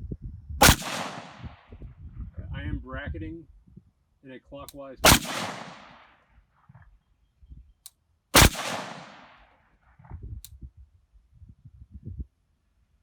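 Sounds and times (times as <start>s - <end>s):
echoing gunshot: 0.6s - 1.7s, 5.0s - 6.2s, 8.4s - 9.5s.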